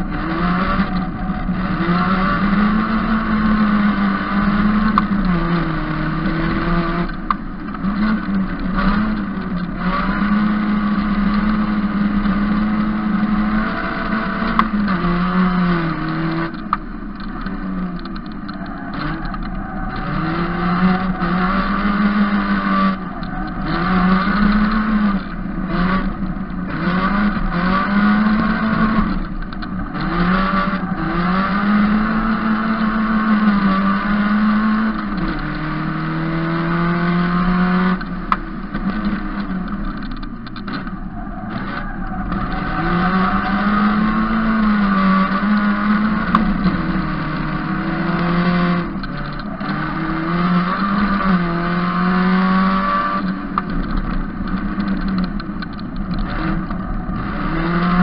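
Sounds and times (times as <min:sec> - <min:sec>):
race car engine revving: 0:00.0 - 0:58.0
sharp click: 0:38.0 - 0:42.8, 0:52.6 - 0:58.0.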